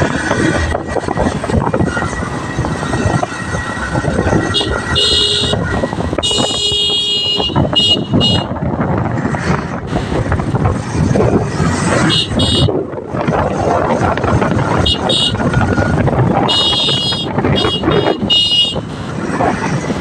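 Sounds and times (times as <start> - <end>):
motorcycle wind and road noise: 0.0 - 20.0
horn honking: 4.4 - 8.6, 12.0 - 12.8, 14.8 - 15.5, 16.4 - 18.9.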